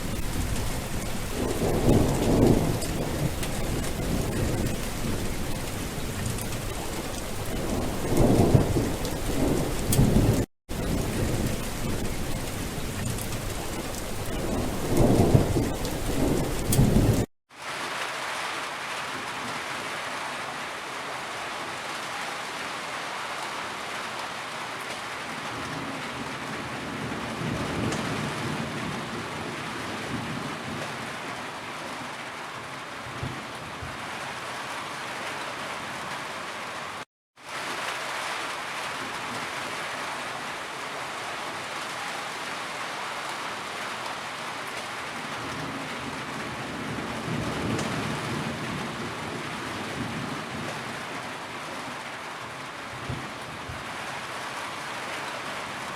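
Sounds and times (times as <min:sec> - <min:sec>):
thunder rumbling: 0:00.0 - 0:17.3
heavy rain: 0:00.0 - 0:55.9.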